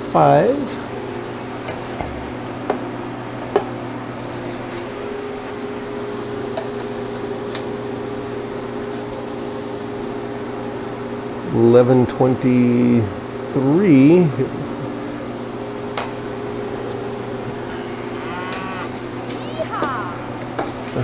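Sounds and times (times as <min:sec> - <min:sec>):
electrical machine hum: 0:00.0 - 0:21.0.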